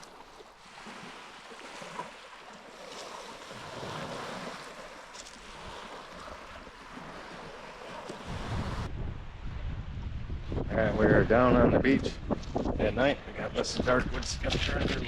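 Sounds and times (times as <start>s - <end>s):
lake waves washing onto beach: 0.0s - 8.9s.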